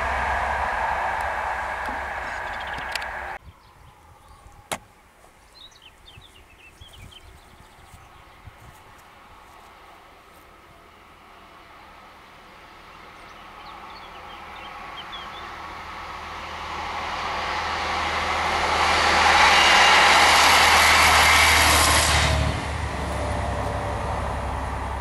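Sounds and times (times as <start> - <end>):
train rushing past: 0.0 - 3.4, 9.1 - 25.0
low hum: 0.0 - 4.7, 9.1 - 25.0
bird chirps: 2.1 - 4.6.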